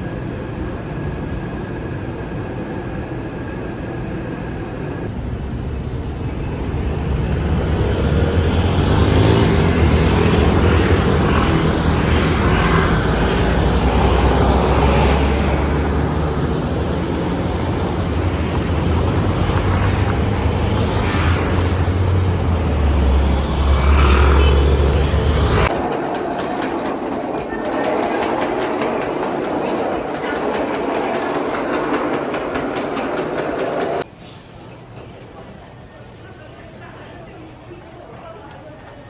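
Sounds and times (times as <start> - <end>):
train rumbling: 3.9 - 34.2.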